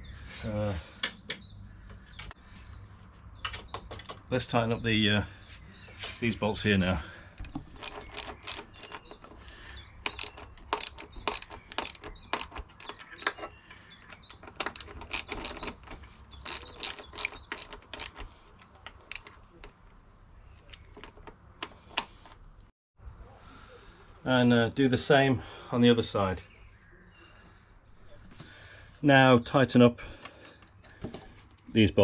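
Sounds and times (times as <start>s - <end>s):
ratchet wrench clicking: 7.4s - 9.1s, 10.1s - 12.6s, 14.6s - 15.7s, 16.4s - 18.3s, 19.1s - 19.4s.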